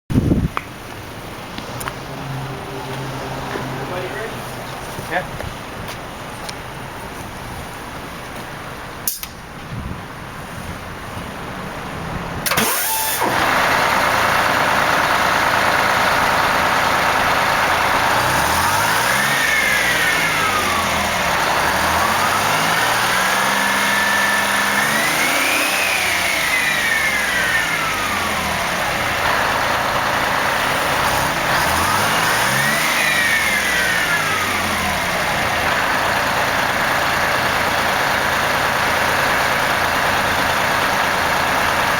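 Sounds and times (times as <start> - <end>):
bus diesel engine idling and revving: 0.7 - 41.9.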